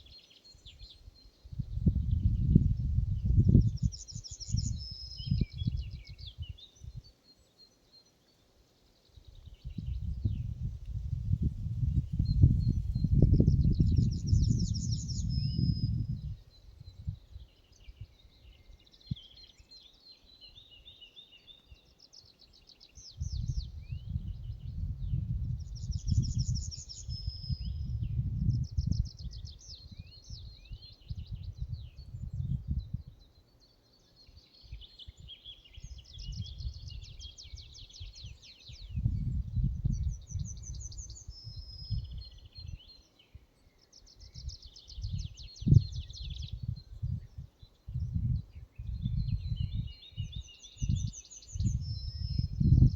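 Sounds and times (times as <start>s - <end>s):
songbirds singing: 0.0s - 52.9s
wind buffeting microphone: 1.4s - 7.1s, 9.2s - 18.2s, 23.1s - 33.2s, 34.8s - 42.9s, 44.2s - 52.9s.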